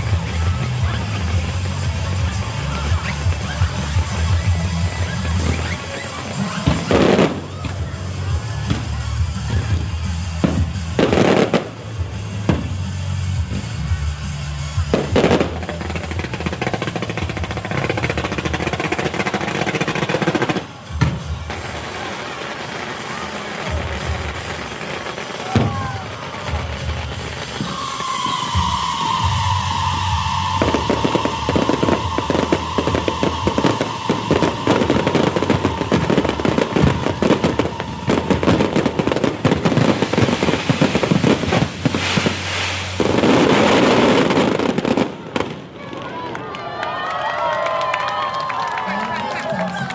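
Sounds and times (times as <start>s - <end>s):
firecrackers crackling: 0.0s - 49.9s
firecracker bang: 0.2s - 13.9s, 14.9s - 45.8s
falling whistle: 27.6s - 39.2s.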